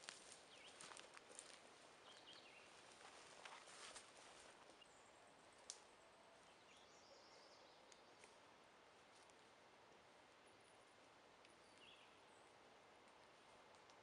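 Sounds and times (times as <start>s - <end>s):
soft rustles and clicks: 0.0s - 4.8s.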